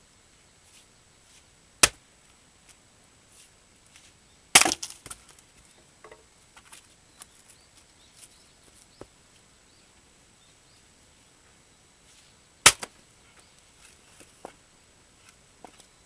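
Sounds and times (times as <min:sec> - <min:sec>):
axe striking log: 0:04.6 - 0:05.2, 0:12.7 - 0:12.9
light wooden knocks and clicks: 0:05.8 - 0:06.7.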